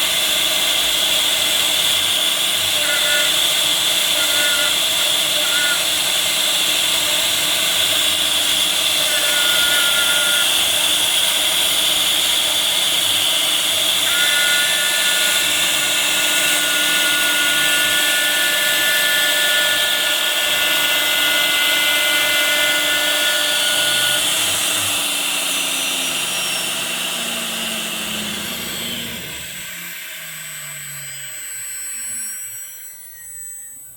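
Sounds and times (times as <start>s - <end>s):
cnc router spindle whine: 0.0s - 33.9s
machine winding down: 18.9s - 33.9s
steady tones: 23.5s - 33.9s.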